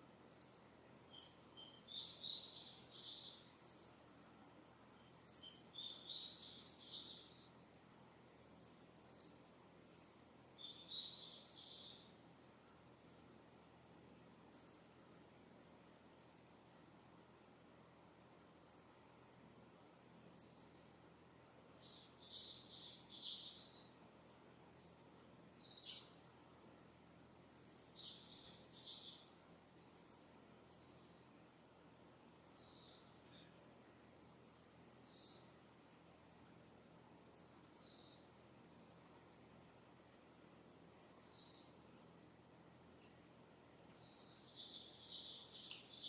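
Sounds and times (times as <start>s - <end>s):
faint steady background hiss: 0.0s - 46.0s
small birds chirping: 0.3s - 4.3s, 4.9s - 12.2s, 12.8s - 13.6s, 14.4s - 15.2s, 16.1s - 16.8s, 18.6s - 19.2s, 20.2s - 21.0s, 21.7s - 26.6s, 27.4s - 31.4s, 32.3s - 35.8s, 37.2s - 39.2s, 41.0s - 42.2s, 42.9s - 46.0s.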